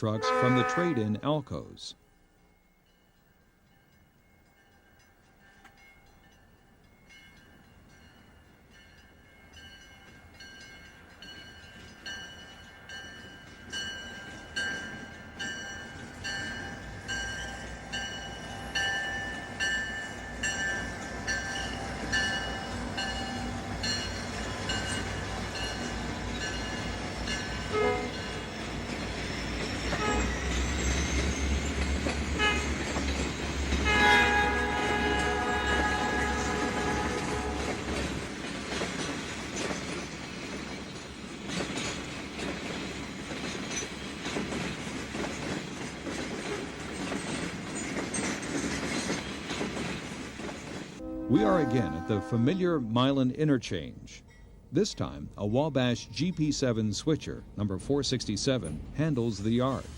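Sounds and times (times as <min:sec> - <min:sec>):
train horn: 0:00.0 - 0:01.2, 0:27.6 - 0:28.4, 0:29.9 - 0:30.5, 0:32.4 - 0:32.8, 0:33.8 - 0:37.9, 0:51.0 - 0:52.8.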